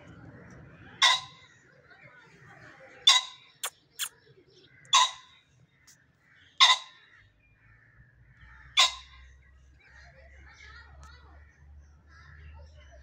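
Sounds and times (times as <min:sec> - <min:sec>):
bird calling harshly: 0:04.9 - 0:05.4, 0:06.5 - 0:07.1, 0:08.7 - 0:09.2.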